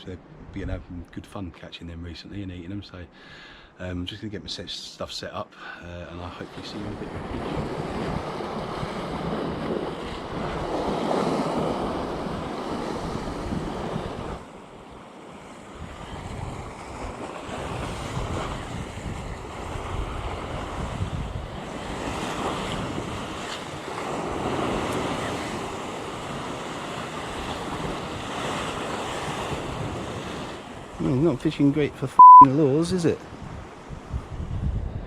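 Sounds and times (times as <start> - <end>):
wind on the microphone: 0.0 - 1.2, 6.9 - 14.5, 15.4 - 31.1, 33.2 - 35.0
sea surf washing against rocks: 6.6 - 31.8.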